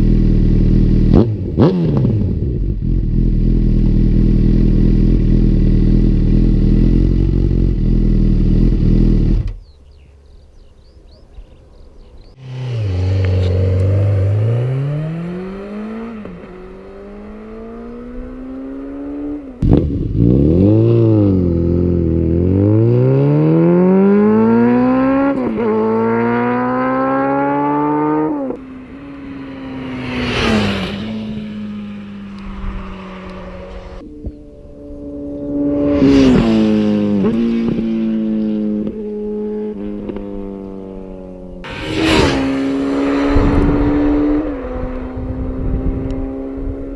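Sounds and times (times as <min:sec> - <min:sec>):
motorcycle engine revving: 0:00.0 - 0:09.7, 0:12.3 - 0:46.9.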